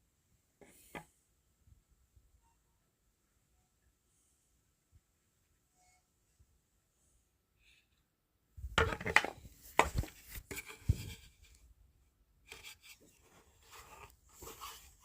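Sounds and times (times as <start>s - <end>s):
objects knocking on hard surface: 8.6s - 10.1s.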